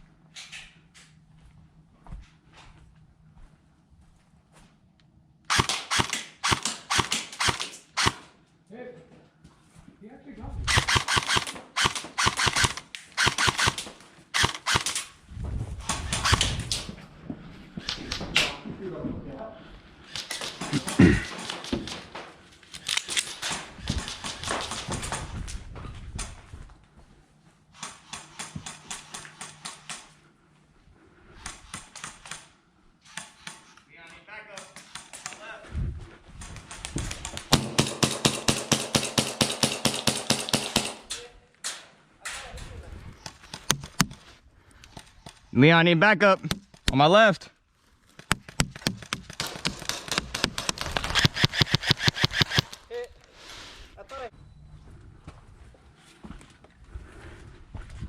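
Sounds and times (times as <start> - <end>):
airsoft guns firing: 5.5 - 8.3, 10.7 - 15.1, 20.1 - 22.2, 22.8 - 25.3, 36.5 - 41.8, 48.2 - 52.8.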